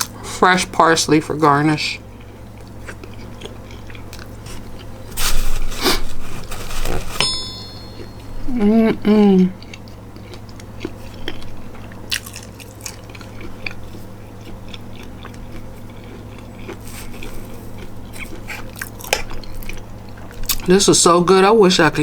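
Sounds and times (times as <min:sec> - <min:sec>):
steady low hum: 0:00.0 - 0:21.3
person chewing food: 0:02.1 - 0:05.1, 0:08.7 - 0:20.7
small crunches and mouth clicks: 0:02.2 - 0:05.0, 0:09.6 - 0:20.7.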